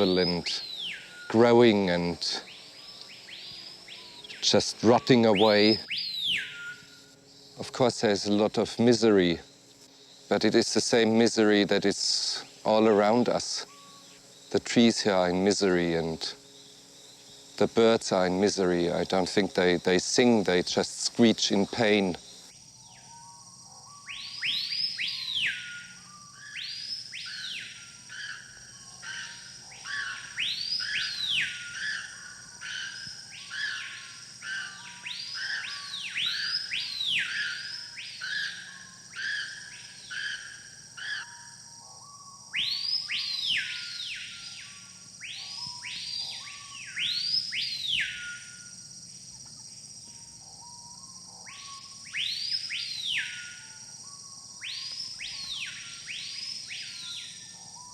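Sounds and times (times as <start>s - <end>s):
bird whistling calls: 0.0s - 7.2s, 13.0s - 14.2s, 22.8s - 48.8s, 50.1s - 57.9s
high-pitched insect drone: 0.0s - 57.9s.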